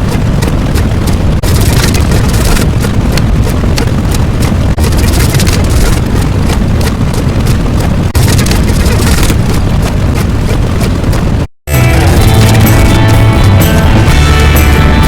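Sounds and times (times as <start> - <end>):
dense rumbling noise: 0.0 - 15.0
rapid crackling: 0.0 - 15.0.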